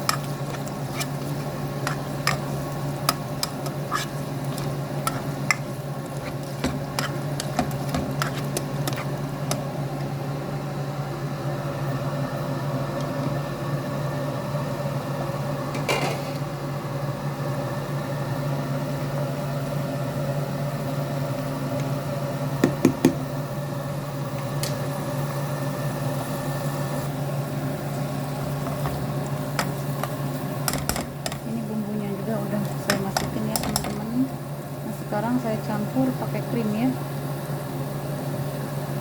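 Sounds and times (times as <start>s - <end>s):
motor hum: 0.0s - 17.0s.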